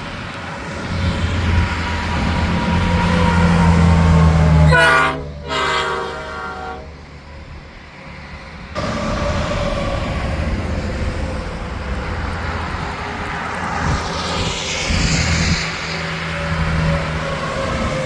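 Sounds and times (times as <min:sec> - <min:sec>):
engine and tyre rumble: 0:00.0 - 0:18.0
traffic noise: 0:00.0 - 0:18.0
truck air horn blasts: 0:02.8 - 0:07.0.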